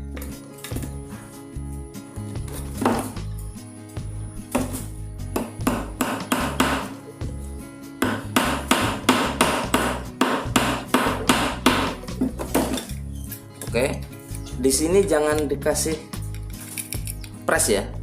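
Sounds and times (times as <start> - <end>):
hammer tapping staple into wood: 8.0 - 12.0.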